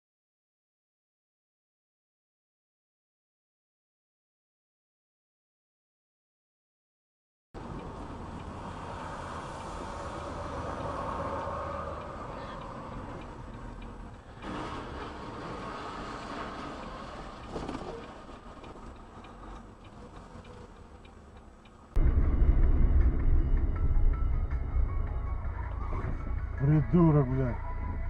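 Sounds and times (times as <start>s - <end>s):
car driving rumble: 7.6s - 28.0s
hazard light relay ticking: 12.0s - 14.5s, 18.0s - 22.0s
faint engine hum: 17.0s - 28.0s.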